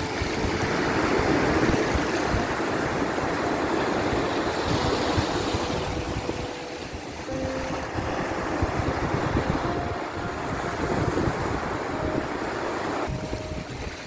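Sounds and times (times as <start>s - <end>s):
sea waves breaking: 0.0s - 14.0s.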